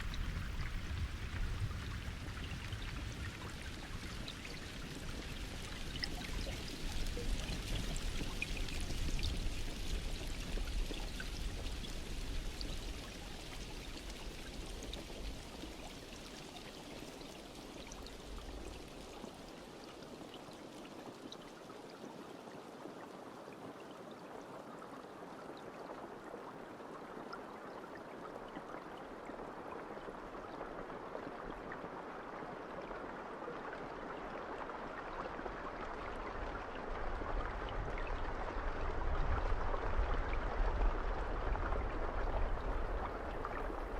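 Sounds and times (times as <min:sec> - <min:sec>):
rain falling: 0:00.0 - 0:21.2.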